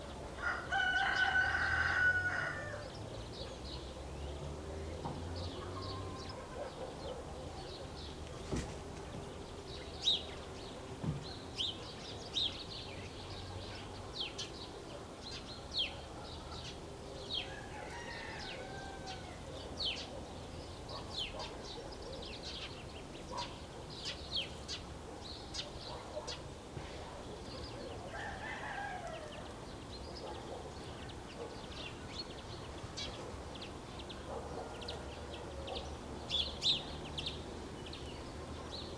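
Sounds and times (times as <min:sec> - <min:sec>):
rooster crowing: 0:00.4 - 0:02.9, 0:17.5 - 0:19.5, 0:28.1 - 0:29.5.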